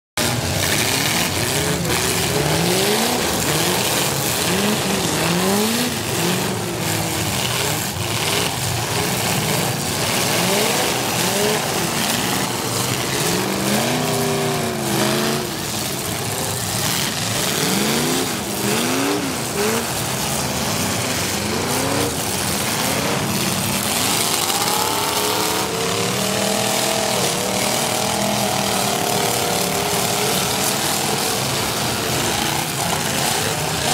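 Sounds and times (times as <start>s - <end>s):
car engines revving: 0.2s - 33.9s.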